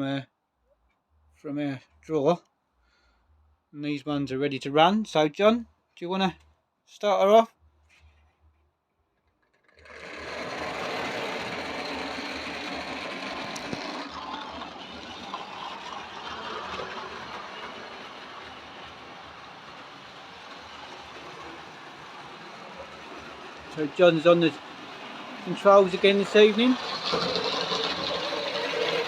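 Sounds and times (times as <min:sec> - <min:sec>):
model train motor whirring: 0:09.2 - 0:29.0
wheels running on rails: 0:09.2 - 0:29.0.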